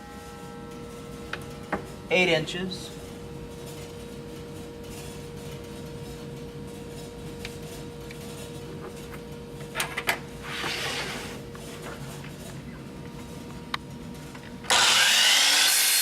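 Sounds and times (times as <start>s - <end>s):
room hum: 0.0s - 16.0s
brief scrape: 10.4s - 11.4s.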